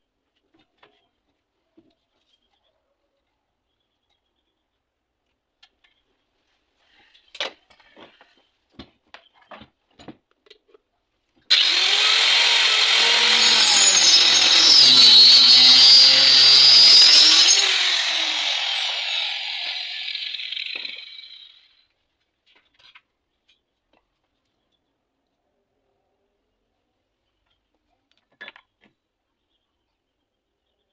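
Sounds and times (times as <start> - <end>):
motor-driven saw running: 11.5 - 21.7.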